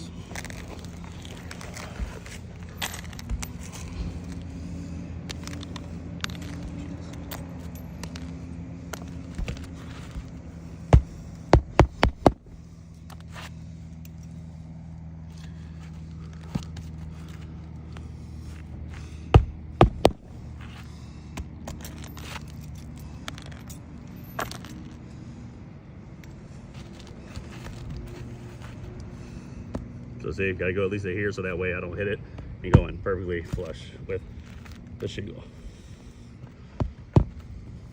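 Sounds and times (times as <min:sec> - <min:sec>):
steady low hum: 0:00.0 - 0:37.9
hammer driving nails: 0:10.9 - 0:12.4.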